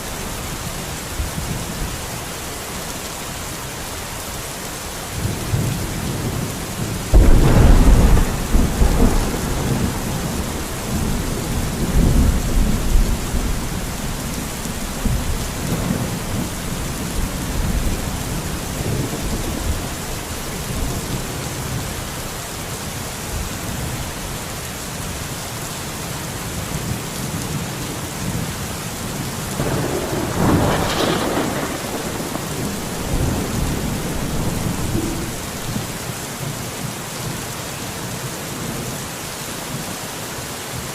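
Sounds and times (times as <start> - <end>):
heavy rain hissing: 0.0 - 40.9
thunder clap and rumble: 5.2 - 21.9, 29.5 - 36.0.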